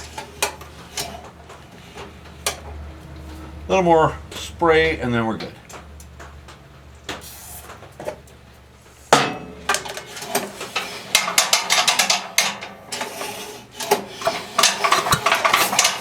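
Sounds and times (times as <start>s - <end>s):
shop hum: 13.5s - 16.0s.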